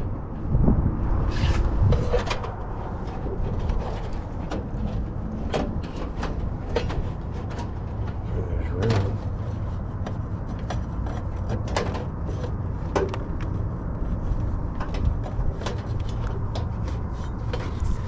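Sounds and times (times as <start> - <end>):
steady low rumble: 0.0 - 18.0
tools clicking and knocking: 3.5 - 9.2, 10.0 - 13.5.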